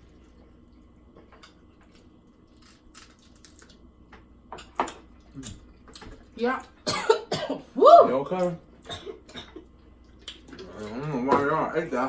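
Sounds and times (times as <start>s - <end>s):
low room hum: 0.0s - 12.0s
crunching taco shells: 1.4s - 4.1s.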